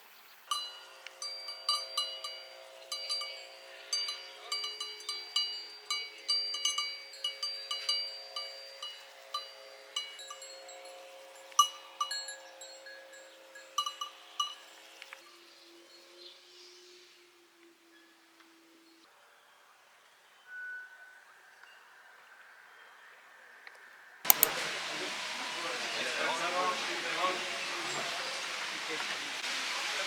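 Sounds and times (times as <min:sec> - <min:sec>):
cowbells clanking: 0:00.5 - 0:15.3.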